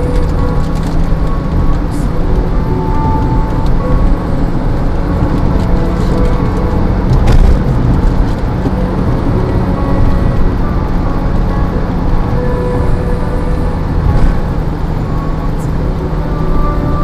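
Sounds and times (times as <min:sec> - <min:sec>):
road and wind noise: 0:00.0 - 0:17.0
vehicle driving rumble: 0:00.0 - 0:17.0.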